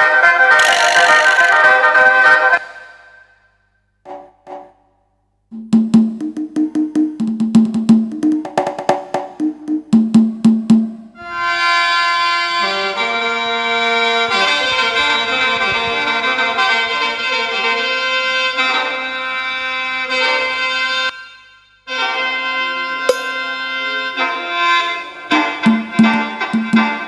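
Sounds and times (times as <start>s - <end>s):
pitched drum hits: 0.6s - 1.7s, 5.5s - 11.0s, 23.1s - 23.8s.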